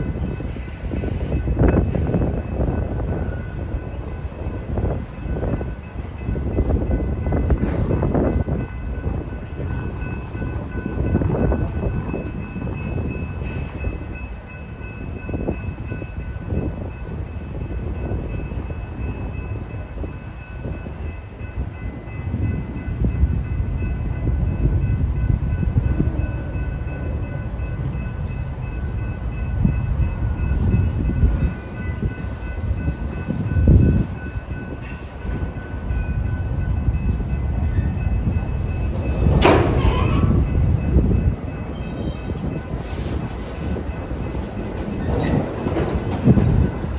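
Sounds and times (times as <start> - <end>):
crossing warning bell ringing: 0.0 - 46.9
freight cars rumbling and clattering: 0.0 - 46.9
metal clank or screech: 39.3 - 40.4.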